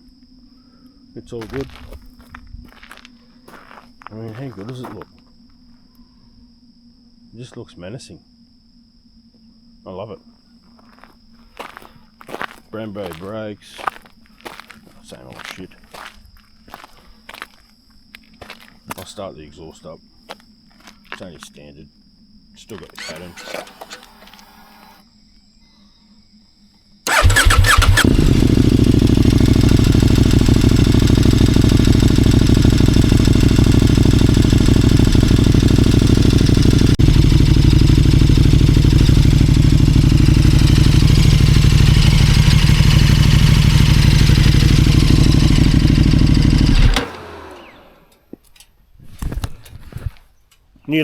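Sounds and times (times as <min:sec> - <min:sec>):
motorcycle engine starting: 0:01.4 - 0:03.8, 0:22.7 - 0:25.0, 0:27.1 - 0:48.3
motorcycle engine idling: 0:27.1 - 0:48.2.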